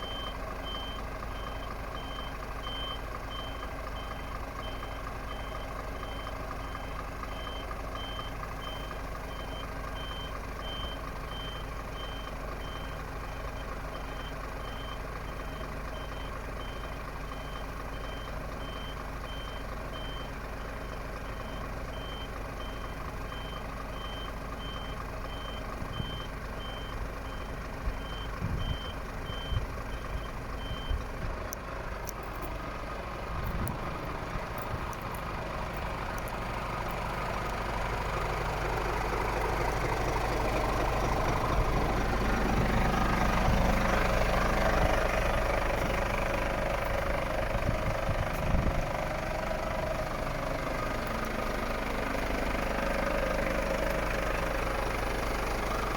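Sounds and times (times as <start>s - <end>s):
reversing alarm beeping: 0.0s - 31.0s
truck engine running: 0.0s - 55.9s.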